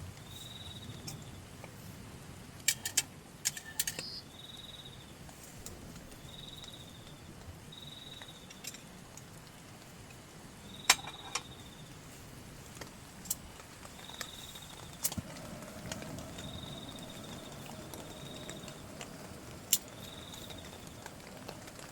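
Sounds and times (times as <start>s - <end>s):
faint steady hiss: 0.0s - 21.9s
insect chirping in pulsed trills: 0.2s - 1.4s, 4.0s - 5.1s, 6.2s - 8.7s, 10.6s - 12.0s, 13.9s - 21.3s.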